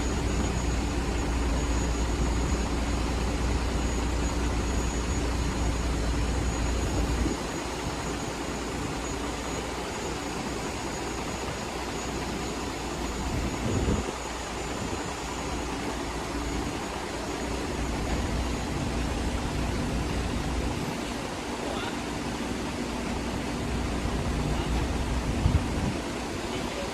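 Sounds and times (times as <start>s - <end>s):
heavy low rumble: 0.0s - 9.0s, 23.8s - 26.0s
electric truck hum and whine: 0.0s - 26.9s.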